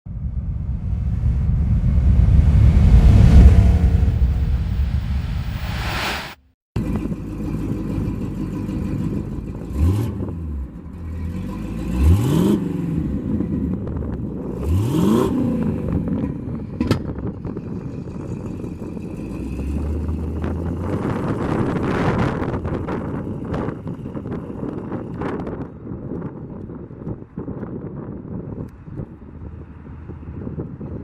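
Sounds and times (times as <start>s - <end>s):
engine idling and revving: 0.1s - 6.0s, 6.8s - 24.6s
wind buffeting microphone: 0.1s - 6.0s, 15.7s - 31.0s.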